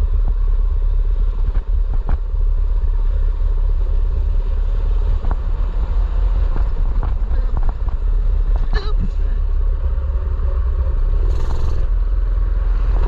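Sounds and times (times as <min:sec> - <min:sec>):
wind rumble on microphone: 0:00.0 - 0:13.0
small engine running: 0:11.2 - 0:11.9.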